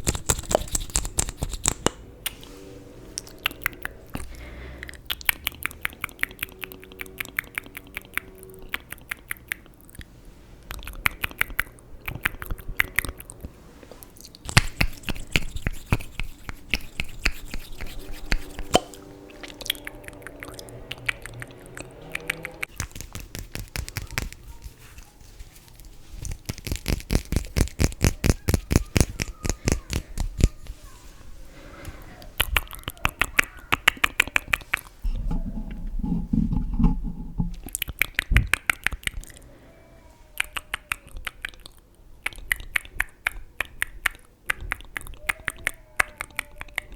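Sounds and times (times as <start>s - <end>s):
asmr clicking and tapping: 0.0s - 2.4s, 14.4s - 18.9s.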